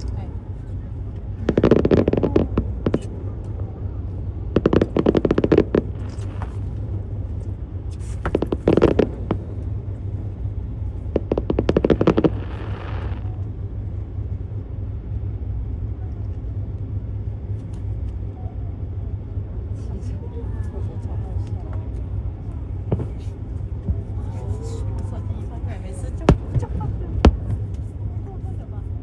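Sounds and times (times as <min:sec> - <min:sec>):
steady low rumble: 0:00.0 - 0:29.0
fireworks crackling: 0:01.4 - 0:03.2, 0:04.6 - 0:06.9, 0:08.2 - 0:09.8, 0:11.0 - 0:13.3, 0:26.2 - 0:27.7
firework hiss: 0:11.2 - 0:13.2.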